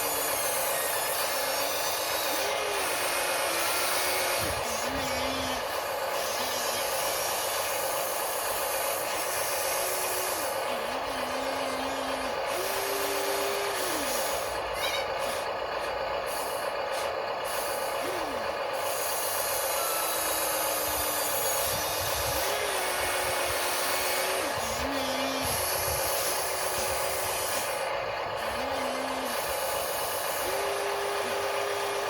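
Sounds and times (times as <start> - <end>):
small electric motors whirring: 0.0 - 15.0, 17.0 - 32.0
motor whines rising and falling: 11.1 - 14.3.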